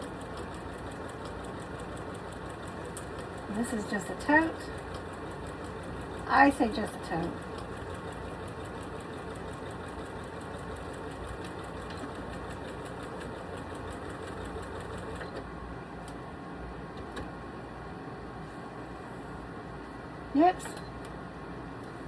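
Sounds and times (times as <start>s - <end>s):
sewing machine stitching: 0.0s - 15.4s.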